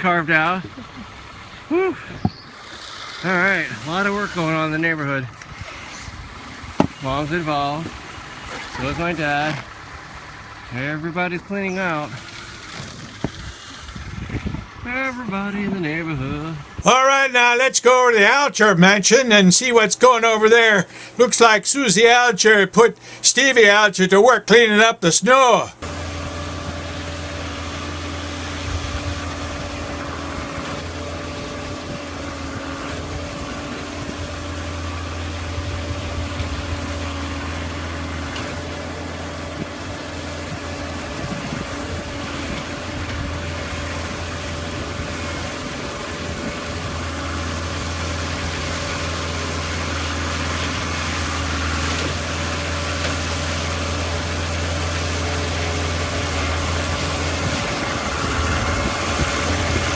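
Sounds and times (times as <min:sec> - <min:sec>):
snowblower engine running: 0:00.0 - 0:21.2, 0:25.8 - 0:59.9.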